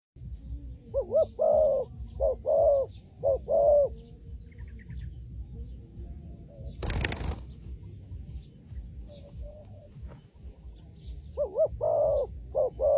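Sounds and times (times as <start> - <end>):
dove cooing: 0.9 - 4.1, 6.5 - 7.5, 8.8 - 10.4, 11.3 - 12.9
wing flaps: 6.8 - 7.9, 9.9 - 10.4.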